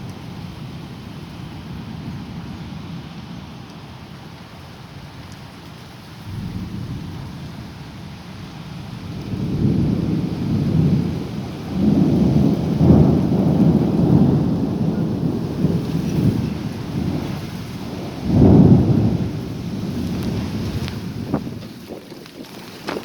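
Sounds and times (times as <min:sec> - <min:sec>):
rain hissing: 0:03.3 - 0:23.0
thunder rumbling: 0:06.3 - 0:23.0.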